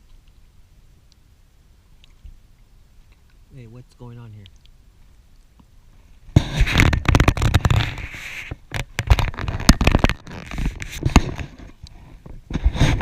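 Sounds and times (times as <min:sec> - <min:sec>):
raindrops tapping on plastic housing: 0:06.4 - 0:11.7.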